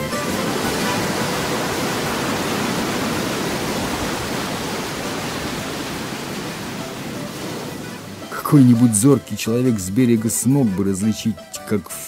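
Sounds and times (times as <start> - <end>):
stormy sea waves rushing: 0.0 - 9.1.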